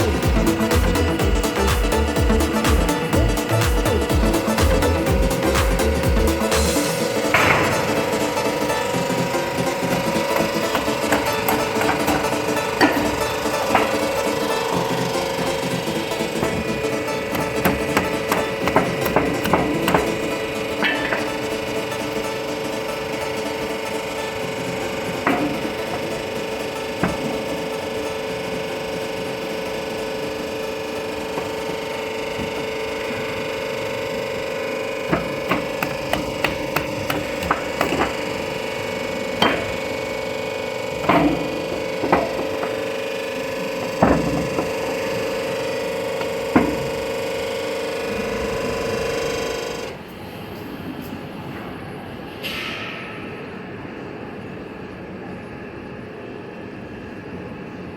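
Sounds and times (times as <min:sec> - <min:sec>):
machine motor hum: 0:00.0 - 0:50.4.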